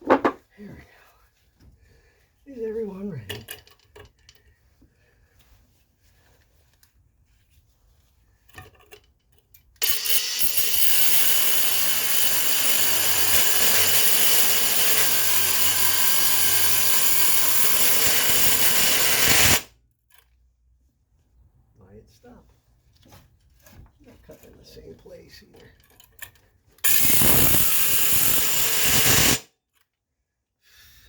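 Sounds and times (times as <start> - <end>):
angle grinder cutting steel: 9.8 - 19.7, 26.8 - 29.4.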